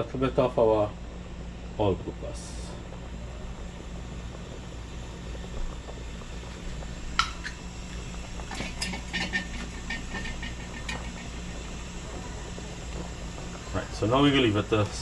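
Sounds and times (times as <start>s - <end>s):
low hum of kitchen range: 0.0s - 15.0s
sauce simmering: 0.8s - 15.0s
metal utensil clinking on pot: 8.5s - 11.3s.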